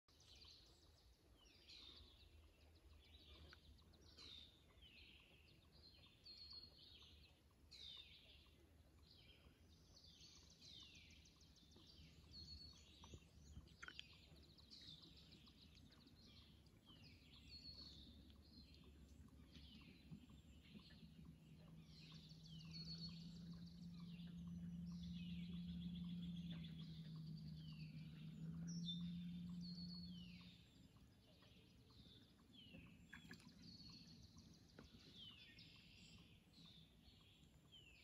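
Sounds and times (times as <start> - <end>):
faint songbirds chirping: 0.0 - 38.0
low steady rumble: 0.1 - 38.0.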